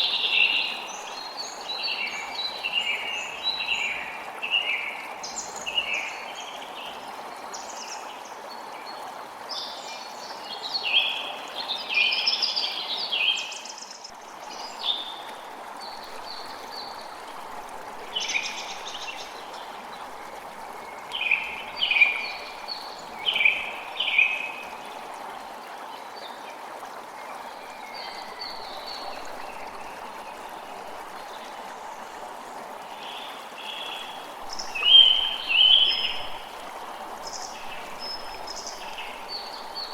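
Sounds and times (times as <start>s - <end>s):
creek running: 0.0s - 39.9s
songbirds chirping: 27.3s - 39.9s.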